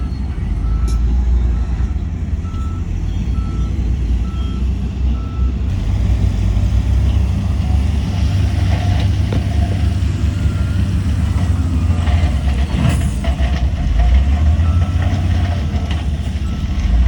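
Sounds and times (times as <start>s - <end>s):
reversing alarm beeping: 0.0s - 5.6s, 10.2s - 12.5s, 14.5s - 17.0s
diesel machinery rumbling: 0.0s - 17.0s.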